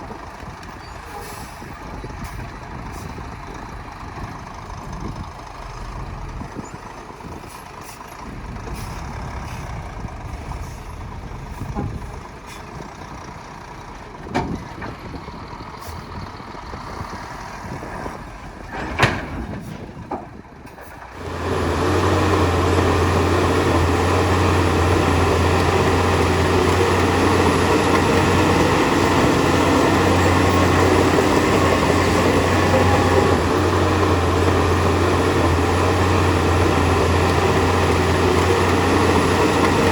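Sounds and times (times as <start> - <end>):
diesel earthmoving machinery: 0.0 - 39.9
deep engine drone: 21.2 - 39.9.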